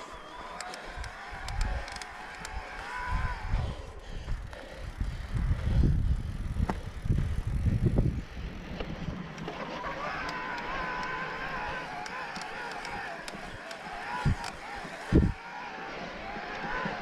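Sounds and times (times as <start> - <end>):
rolling bike noise: 0.0 - 17.0
light clicks: 0.4 - 2.9, 12.0 - 14.6
wind buffeting microphone: 0.9 - 9.3, 12.9 - 15.4.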